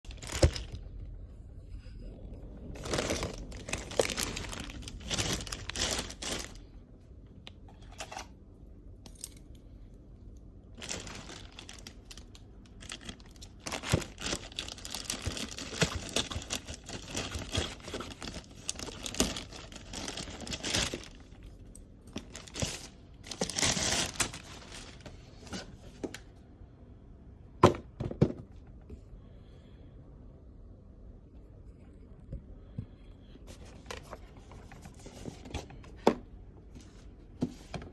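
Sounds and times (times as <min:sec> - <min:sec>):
packaging crinkling and tearing: 0:00.1 - 0:01.0, 0:02.7 - 0:06.7, 0:10.8 - 0:21.5, 0:22.1 - 0:25.6.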